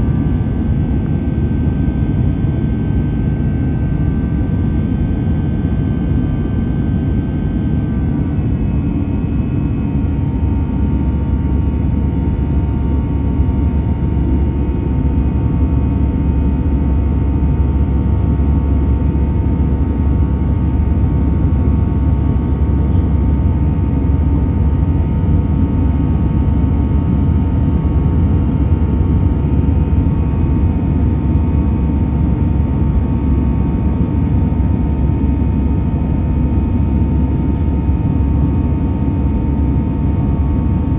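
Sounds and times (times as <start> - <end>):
jet engine whine: 0.0 - 40.9
jet engines rumbling: 14.8 - 40.9.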